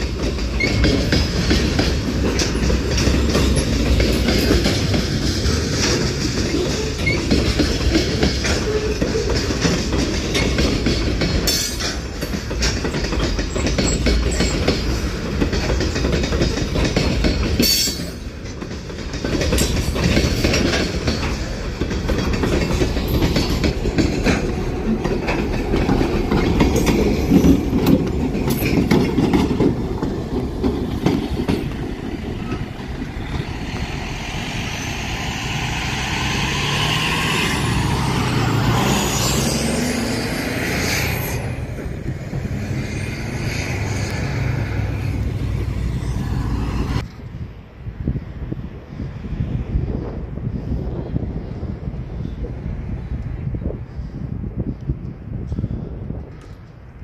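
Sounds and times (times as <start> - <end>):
wheels clicking over rail joints: 0.0 - 47.4
diesel locomotive engine running: 0.0 - 57.0
freight train rolling past: 0.0 - 57.0.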